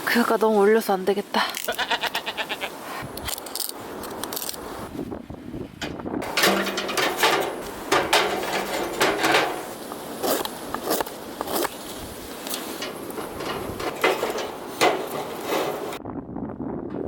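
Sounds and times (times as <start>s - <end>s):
knocks and rough clattering: 5.7s - 11.8s, 12.4s - 16.0s.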